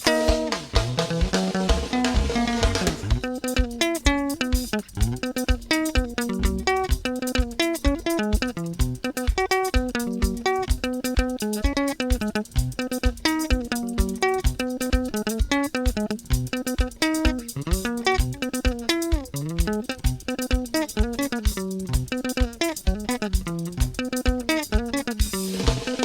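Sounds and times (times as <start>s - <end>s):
bass line: 0.0s - 3.3s, 4.8s - 5.3s, 6.3s - 7.0s, 19.4s - 20.2s
picked guitar notes: 0.0s - 26.0s
steady beat: 0.0s - 26.0s.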